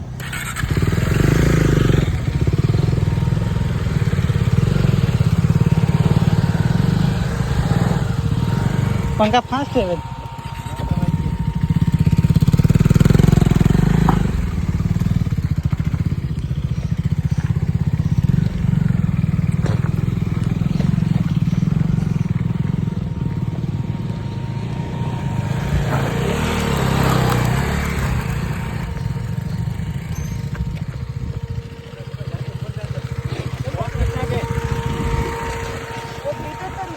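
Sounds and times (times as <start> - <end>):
motorcycle engine rumble: 0.0 - 36.9.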